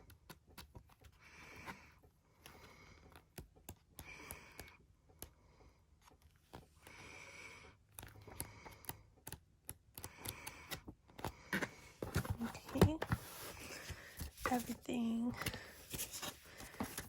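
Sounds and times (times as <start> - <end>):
paper pages rustling: 11.2 - 17.0.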